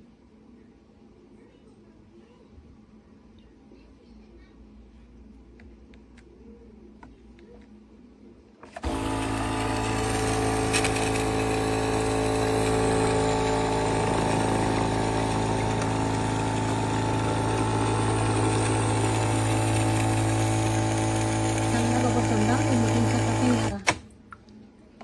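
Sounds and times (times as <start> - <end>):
coffee machine pump buzzing: 8.6 - 24.0.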